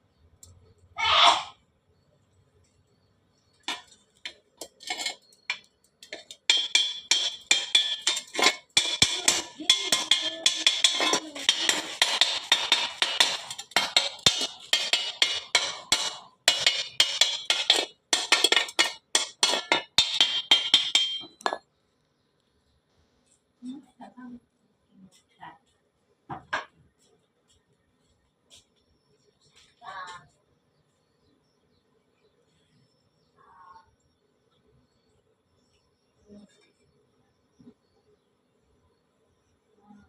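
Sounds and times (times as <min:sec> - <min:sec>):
welding arc crackling: 0:03.7 - 0:21.2.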